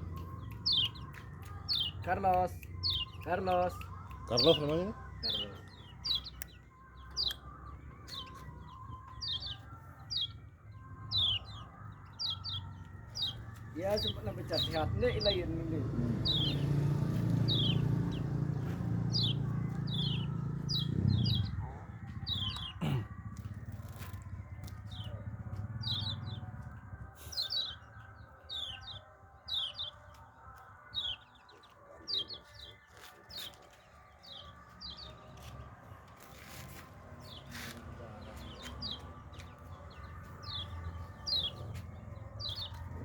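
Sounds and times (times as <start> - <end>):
bird chirps sliding downward: 16.1 - 21.6.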